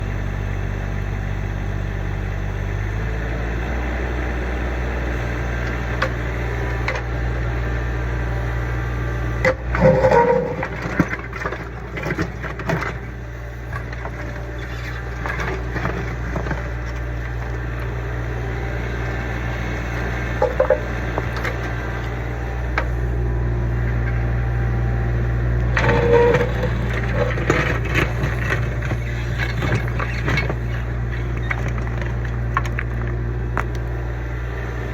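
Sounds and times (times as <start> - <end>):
diesel excavator engine running: 0.0 - 34.9
short metallic squeals: 9.4 - 16.2, 19.8 - 21.8, 25.7 - 31.8
clanking and scraping: 9.4 - 23.1, 25.5 - 33.8.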